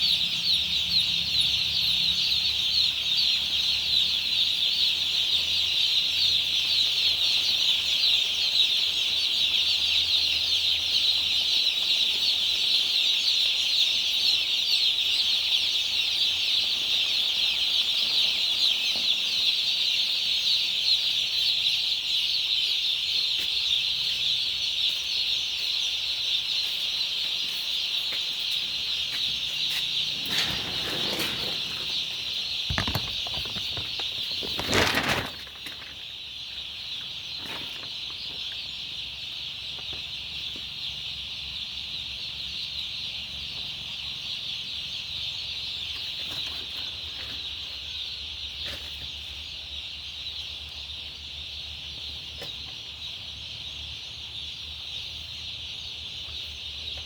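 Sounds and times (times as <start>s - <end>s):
chickens calling: 0.0s - 57.0s
noisy rustles: 29.9s - 35.9s.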